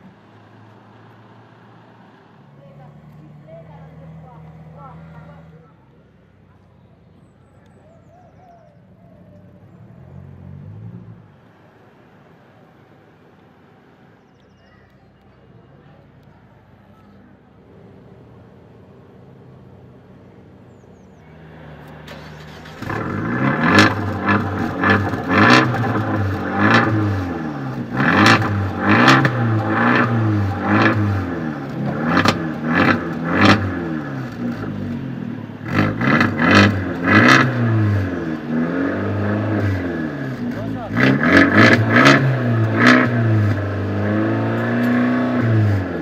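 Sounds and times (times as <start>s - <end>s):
car engine revving in blips: 20.6s - 46.0s.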